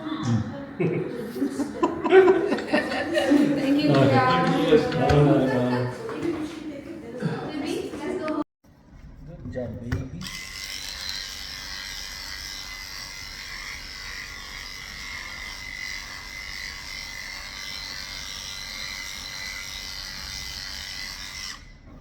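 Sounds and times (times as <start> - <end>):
small electric motor whine: 10.2 - 21.8.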